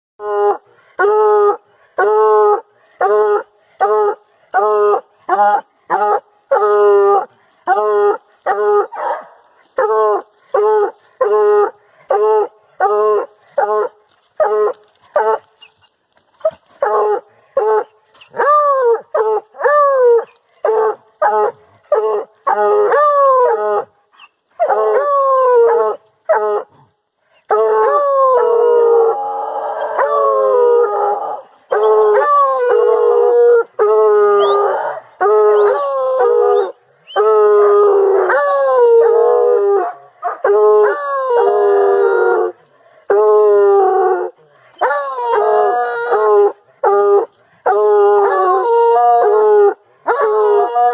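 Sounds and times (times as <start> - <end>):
hounds baying: 29.8 - 39.2.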